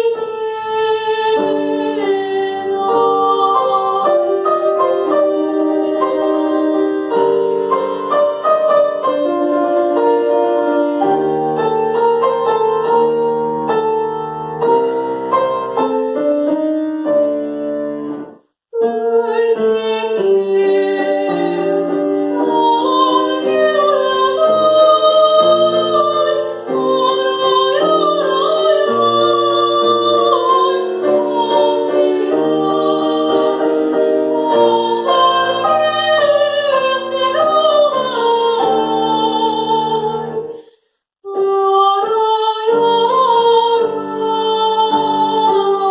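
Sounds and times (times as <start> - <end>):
woman singing with vibrato: 0.0 - 6.6, 18.8 - 45.9
piano accompaniment: 0.0 - 40.7, 41.3 - 45.9.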